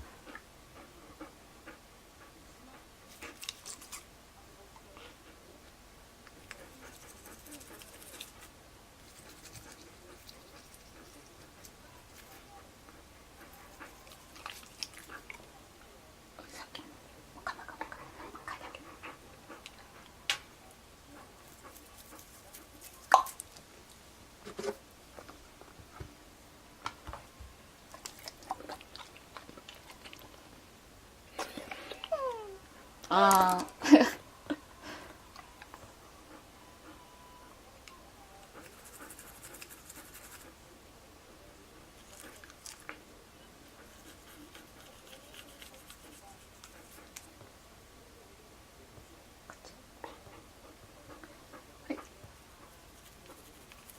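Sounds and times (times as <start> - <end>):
toothbrush scrubbing dog's teeth: 3.1 - 4.1, 6.4 - 12.5, 13.4 - 15.4, 21.4 - 23.5, 38.6 - 40.5, 43.7 - 47.3, 52.0 - 53.9.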